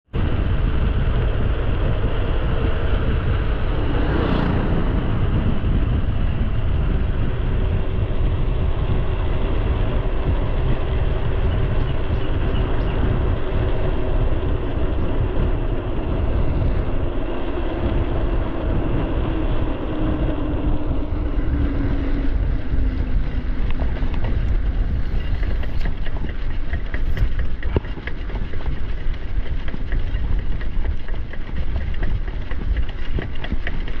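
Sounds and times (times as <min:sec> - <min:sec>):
bike tyres rumbling on ground: 0:00.1 - 0:34.0
wind buffeting microphone: 0:00.1 - 0:34.0.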